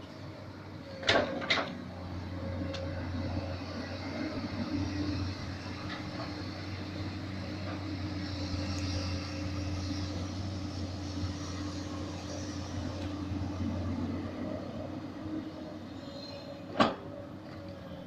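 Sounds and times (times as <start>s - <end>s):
excavator diesel engine droning: 0.0s - 18.0s.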